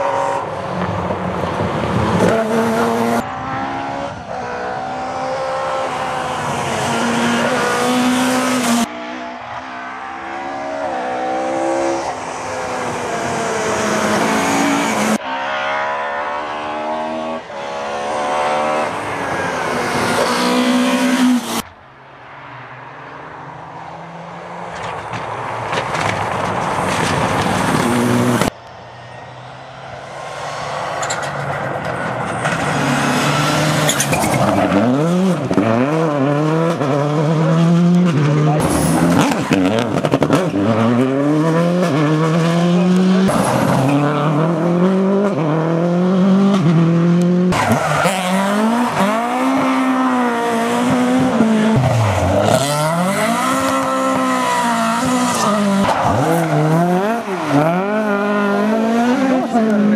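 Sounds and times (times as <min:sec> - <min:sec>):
rally car engines revving: 0:00.0 - 0:21.6, 0:23.0 - 0:59.9.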